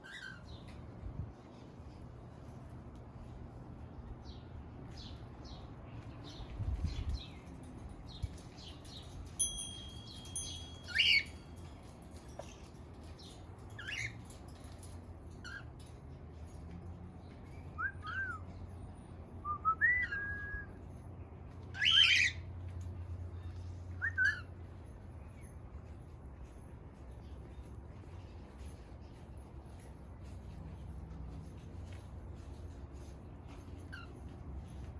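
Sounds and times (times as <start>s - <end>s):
cockatiel chirping and whistling: 21.8s - 22.4s.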